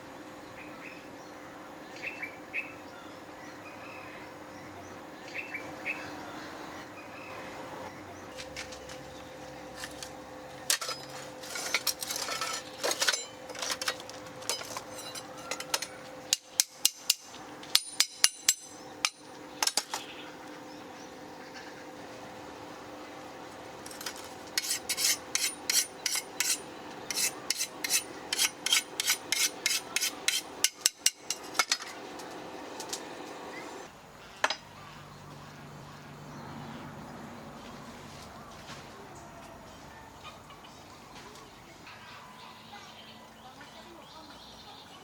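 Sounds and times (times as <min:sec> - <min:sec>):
metal tools clicking and knocking: 0:10.7 - 0:20.1, 0:23.9 - 0:32.0.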